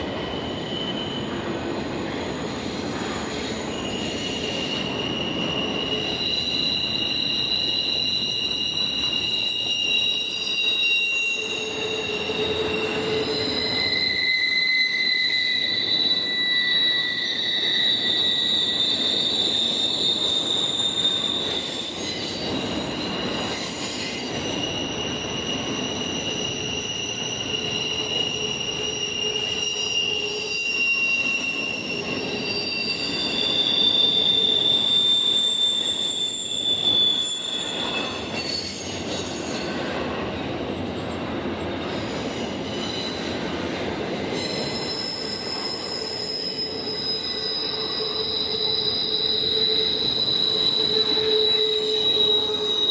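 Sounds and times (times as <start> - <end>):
train wheels squealing on rails: 0.0 - 52.9.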